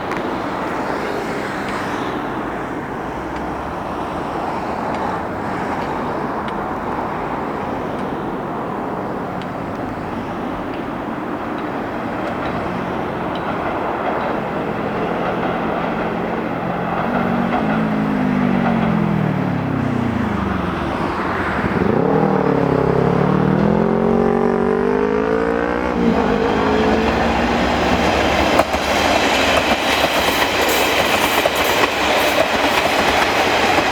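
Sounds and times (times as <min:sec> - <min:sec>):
outdoor traffic noise: 0:00.0 - 0:33.9
vehicle engine revving: 0:16.9 - 0:28.6.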